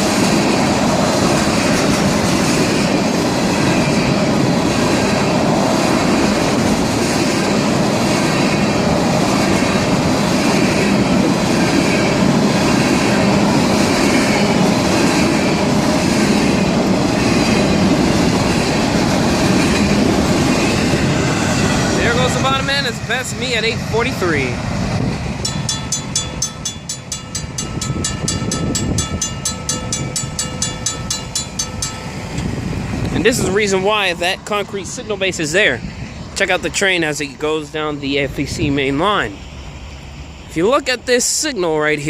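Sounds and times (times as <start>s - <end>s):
freight train wheels clattering: 24.8s - 33.8s.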